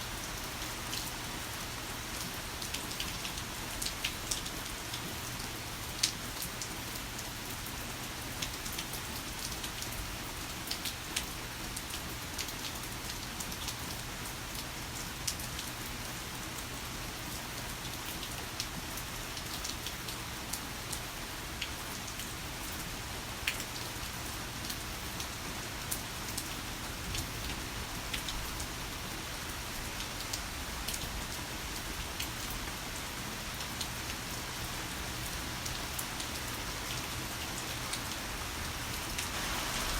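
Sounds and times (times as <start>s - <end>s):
raindrops hitting a surface: 0.0s - 39.9s
heavy rain hiss: 24.0s - 39.9s.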